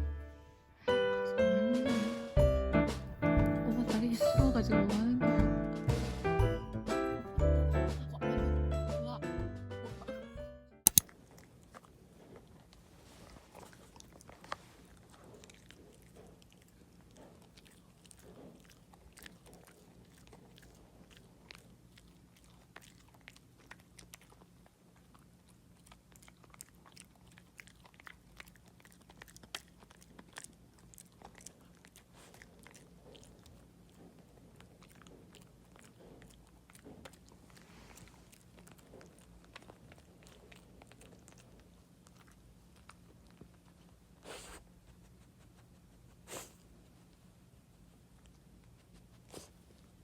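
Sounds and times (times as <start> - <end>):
dog chewing crunchy treat: 10.9 - 50.0.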